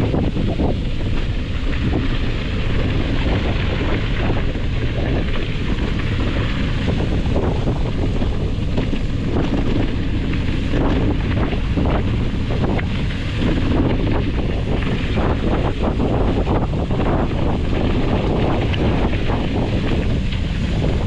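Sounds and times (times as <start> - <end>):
wind noise on microphone: 0.0 - 21.0.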